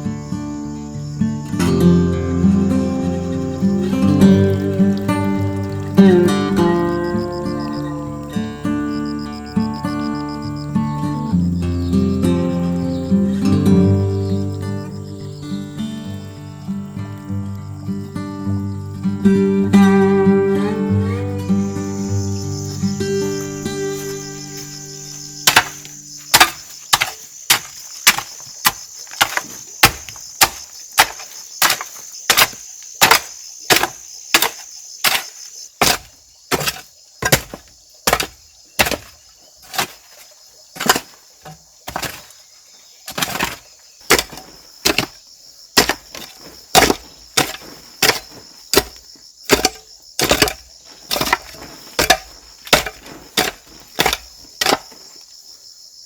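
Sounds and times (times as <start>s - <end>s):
crickets chirring: 0.0s - 56.0s
chopping wood: 3.7s - 7.8s, 25.4s - 40.2s, 40.8s - 42.4s, 43.1s - 45.2s, 45.8s - 55.1s.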